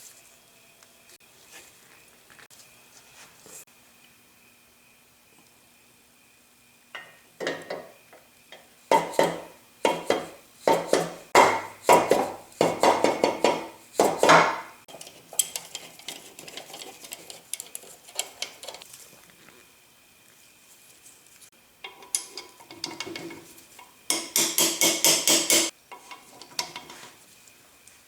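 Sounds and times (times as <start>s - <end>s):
metal tools clanking on metal: 14.9s - 18.8s, 21.8s - 27.2s.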